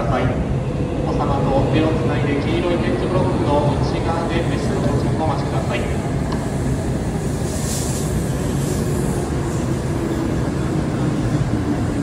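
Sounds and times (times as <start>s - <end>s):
train rumbling and humming: 0.0s - 12.0s
brief hiss: 7.2s - 9.1s.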